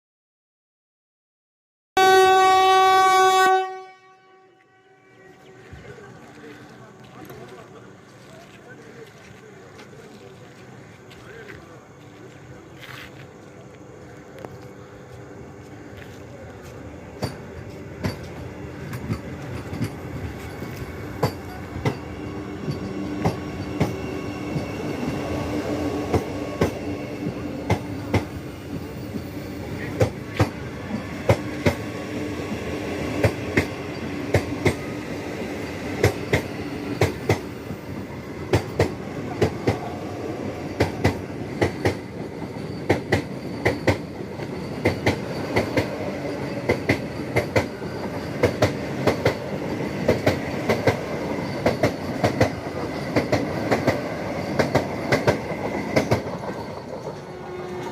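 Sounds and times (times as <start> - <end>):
train rolling along track: 2.0 - 57.9
wheels clacking over rail joints: 16.0 - 25.2, 38.4 - 39.9, 40.5 - 57.9.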